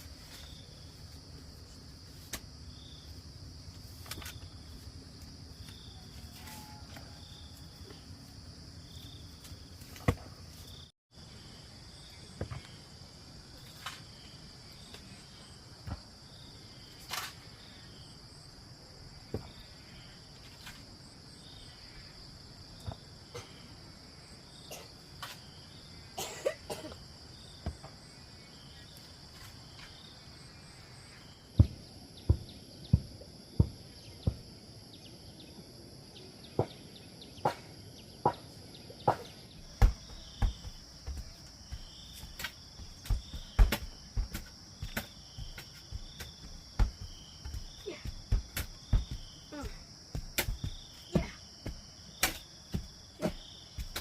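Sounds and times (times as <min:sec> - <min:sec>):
digging tool thudding into soil: 0:09.9 - 0:10.3, 0:42.2 - 0:54.0
high insect chirring: 0:39.3 - 0:54.0.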